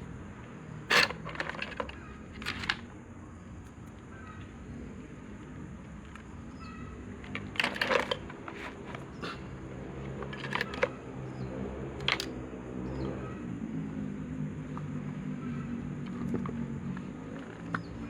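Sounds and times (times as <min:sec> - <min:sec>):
clicks of small parts and tools: 0:00.9 - 0:02.8, 0:07.2 - 0:09.4, 0:10.1 - 0:11.0, 0:12.0 - 0:12.4.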